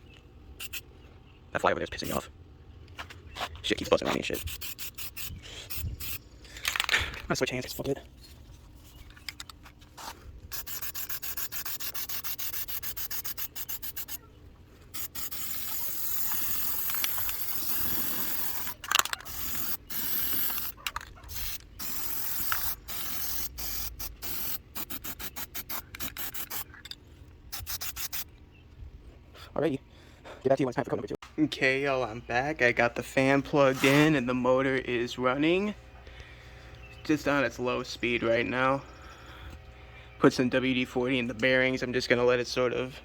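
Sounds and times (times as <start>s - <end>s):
spray paint can hissing: 0.6s - 0.8s, 4.3s - 6.2s, 10.0s - 14.2s, 14.9s - 26.7s, 27.5s - 28.3s.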